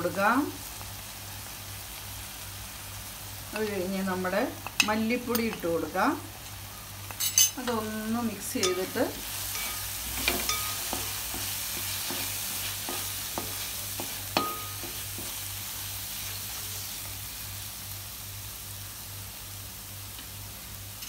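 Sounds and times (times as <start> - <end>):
vegetables sizzling in oil: 0.0 - 21.0.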